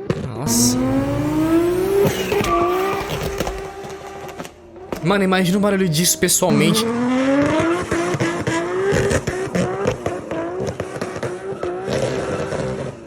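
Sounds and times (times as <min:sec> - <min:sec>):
car engine accelerating hard: 0:00.0 - 0:13.0
exhaust crackles: 0:00.1 - 0:13.0.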